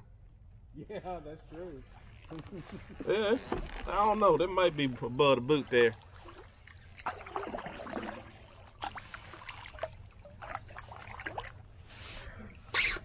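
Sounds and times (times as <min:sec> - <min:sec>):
paddle splashing in water: 0:05.6 - 0:12.2.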